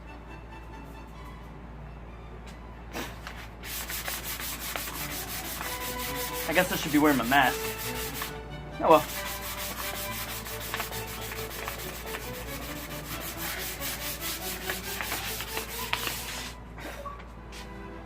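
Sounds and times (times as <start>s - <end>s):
sandpaper rasping on metal: 3.6s - 8.3s, 9.0s - 16.5s.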